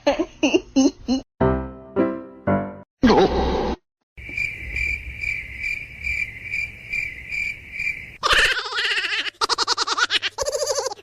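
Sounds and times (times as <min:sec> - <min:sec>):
insect chirring: 0:04.2 - 0:08.2.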